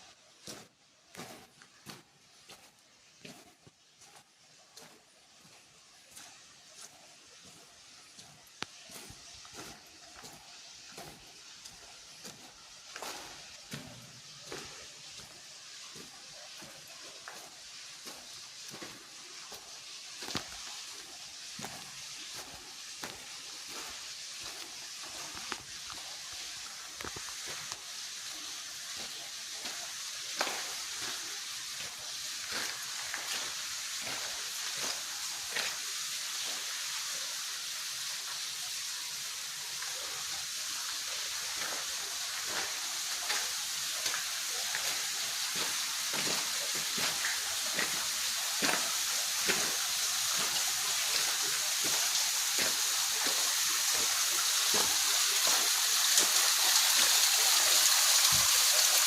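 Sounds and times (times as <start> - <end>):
water taps and splashes: 0.4 - 59.0
waterfall rushing: 13.0 - 36.6, 39.3 - 59.0.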